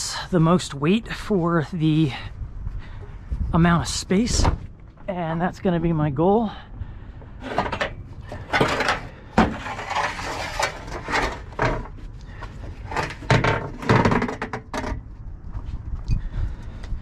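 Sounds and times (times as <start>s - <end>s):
scrap metal clattering in dumpster: 7.4s - 11.9s.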